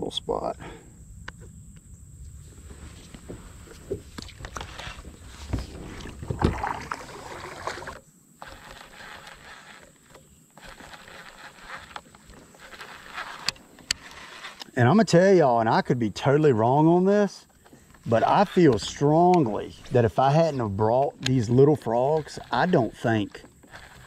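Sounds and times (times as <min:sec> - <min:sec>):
kayak paddle strokes in water: 0:03.3 - 0:14.7, 0:17.8 - 0:24.0
knocks on kayak: 0:05.6 - 0:06.9.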